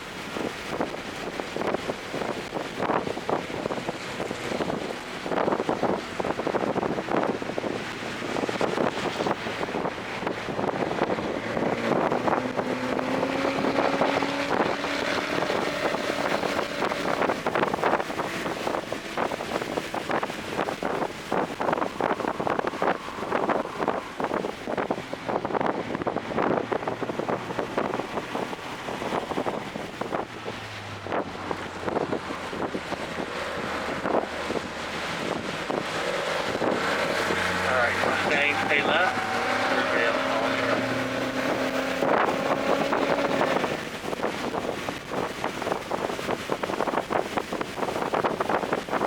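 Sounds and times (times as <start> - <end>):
car engine accelerating: 0.0 - 49.0
wind and road noise on microphone: 0.0 - 49.0.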